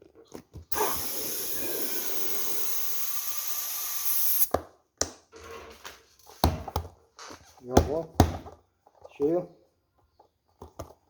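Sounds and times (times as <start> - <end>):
compressed air hissing into ball: 0.7 - 4.5.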